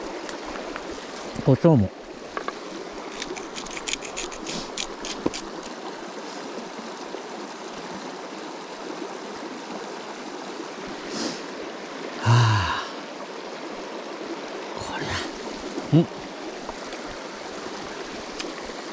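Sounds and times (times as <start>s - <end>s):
stream flowing: 0.0s - 18.9s
short low human vocal sound: 15.9s - 16.2s.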